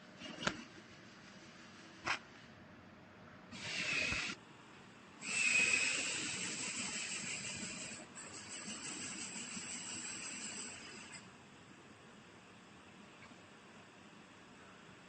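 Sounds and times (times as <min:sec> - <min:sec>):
hissing gas flow with whistle: 0:03.5 - 0:04.4, 0:05.2 - 0:11.2.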